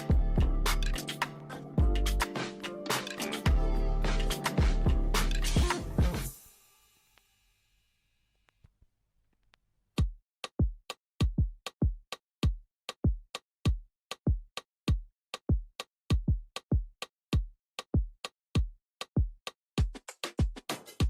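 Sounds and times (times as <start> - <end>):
electronic drum machine beat: 0.0 - 6.4.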